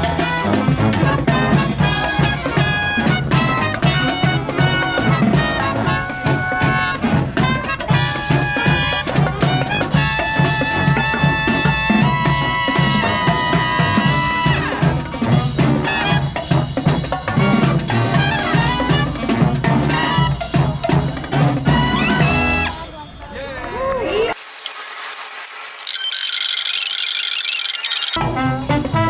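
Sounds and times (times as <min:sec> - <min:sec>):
drums: 0:00.0 - 0:22.8.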